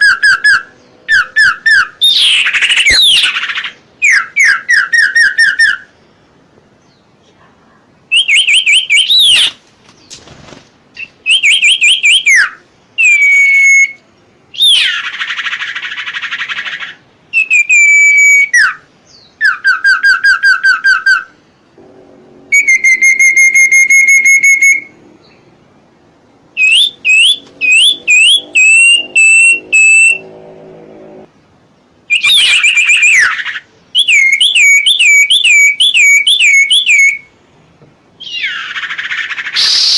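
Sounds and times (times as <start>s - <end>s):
bird whistled song: 0.0s - 6.0s, 8.1s - 9.6s, 11.0s - 21.4s, 22.5s - 25.4s, 26.6s - 30.3s, 32.1s - 37.3s, 38.2s - 39.9s
bird harsh rasping call: 19.4s - 25.3s, 26.6s - 31.0s, 38.2s - 39.9s.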